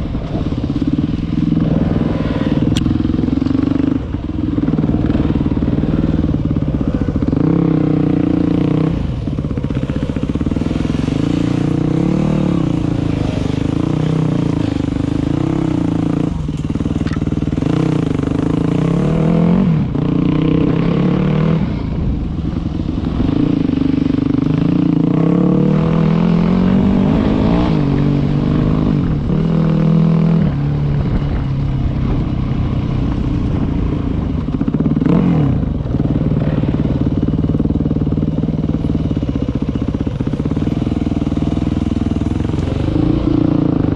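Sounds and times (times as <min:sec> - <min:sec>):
dirt bike engine revving: 0:00.7 - 0:21.8, 0:22.8 - 0:30.8.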